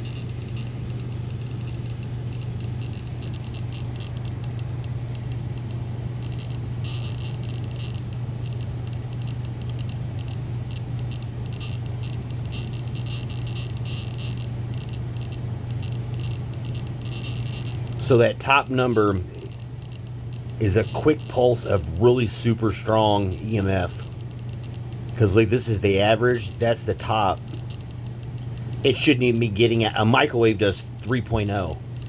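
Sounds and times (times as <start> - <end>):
meter speaker low hum: 0.0 - 32.0.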